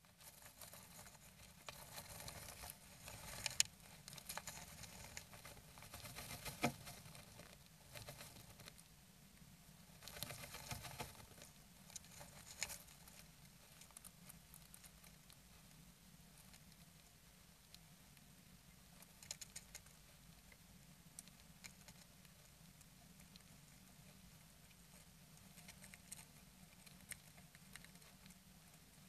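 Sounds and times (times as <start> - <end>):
bird rustling nesting material: 0.0 - 8.8, 10.0 - 13.2.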